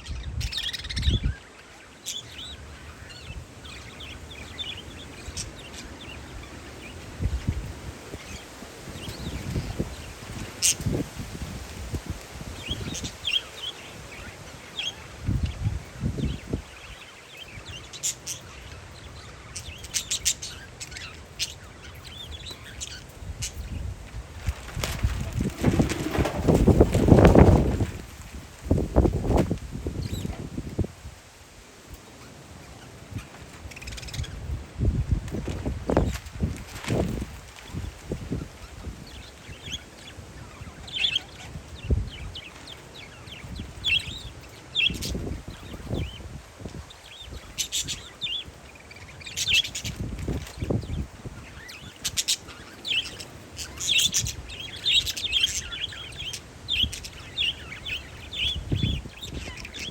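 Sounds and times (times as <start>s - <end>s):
low wind rumble: 0.0s - 1.5s, 2.4s - 19.8s, 22.0s - 31.8s, 33.0s - 52.0s, 52.6s - 59.9s
parakeets chirping: 0.0s - 7.5s, 12.6s - 23.8s, 33.2s - 34.4s, 38.6s - 46.2s, 46.8s - 59.9s.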